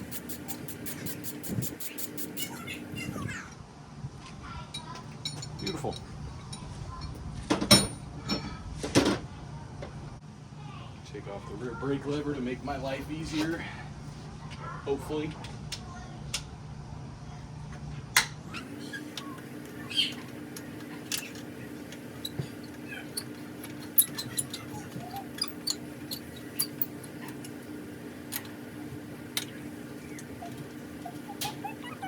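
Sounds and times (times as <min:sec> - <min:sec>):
faint squeaks: 0:30.0 - 0:32.0.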